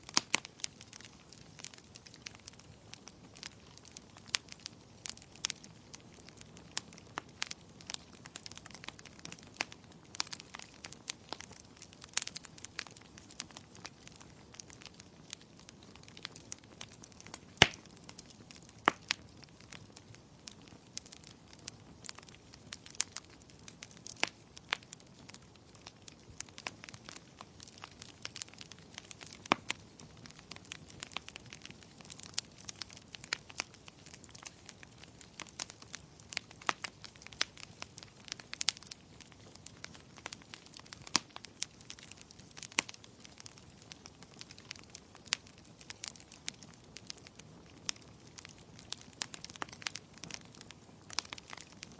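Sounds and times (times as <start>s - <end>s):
faint hiss of fire: 0.0s - 51.9s
fire crackling and popping: 0.0s - 51.9s.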